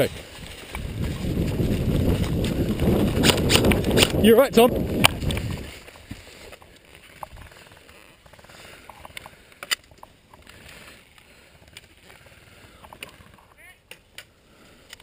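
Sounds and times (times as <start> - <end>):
sharp clicks: 3.2 - 4.2.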